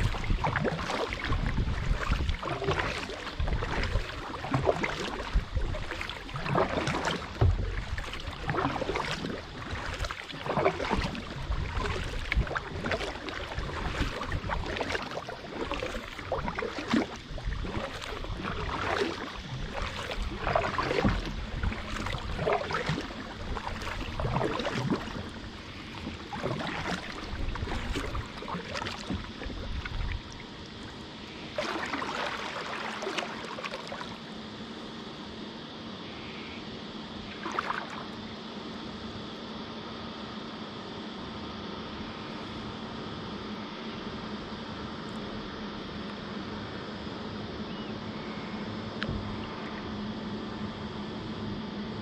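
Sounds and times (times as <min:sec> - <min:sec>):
water splashing against kayak: 0:00.0 - 0:36.3, 0:37.2 - 0:39.3.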